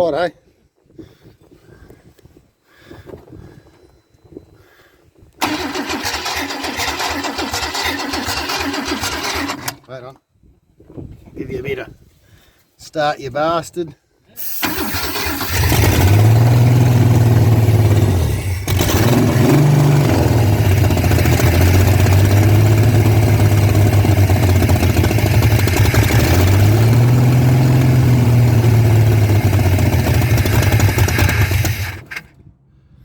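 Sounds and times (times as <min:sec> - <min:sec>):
old car engine revving: 0:05.4 - 0:09.8, 0:14.6 - 0:32.3.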